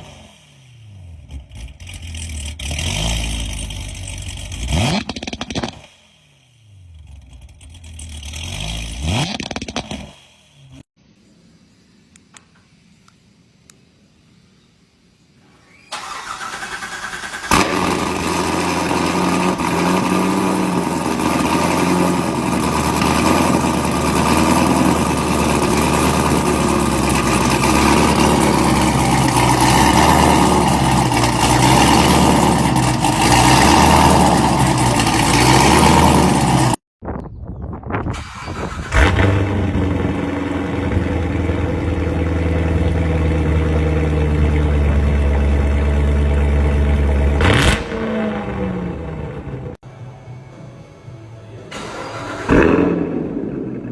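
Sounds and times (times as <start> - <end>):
car engine idling: 0.0 - 9.1, 16.0 - 36.8, 38.3 - 49.8
car engine starting: 0.0 - 10.9, 15.5 - 36.8, 38.0 - 49.8, 51.6 - 53.9.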